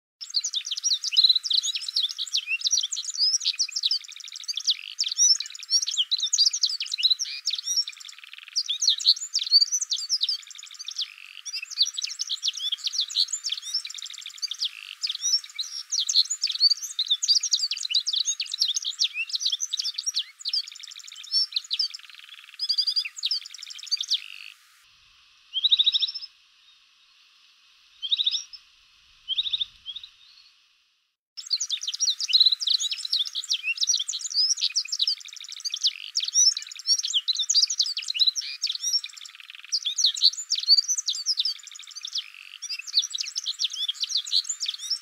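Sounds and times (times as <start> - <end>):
songbirds singing: 0.2 - 24.7, 25.4 - 27.2, 28.0 - 30.6, 31.4 - 45.0.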